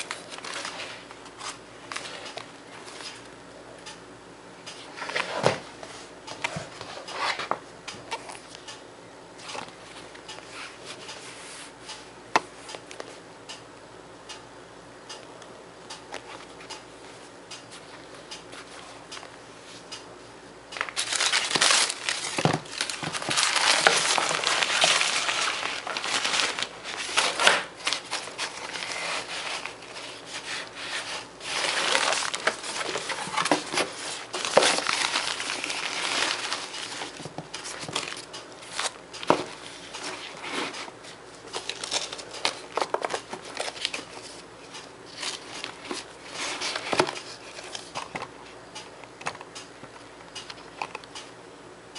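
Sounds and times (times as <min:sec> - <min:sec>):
packaging crinkling: 0:20.8 - 0:40.9, 0:41.5 - 0:48.3.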